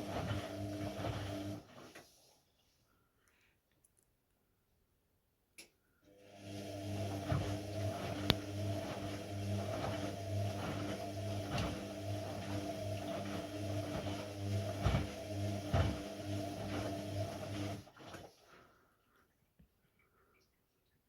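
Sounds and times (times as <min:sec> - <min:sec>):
washing machine hum: 0:00.0 - 0:02.3, 0:06.1 - 0:20.2.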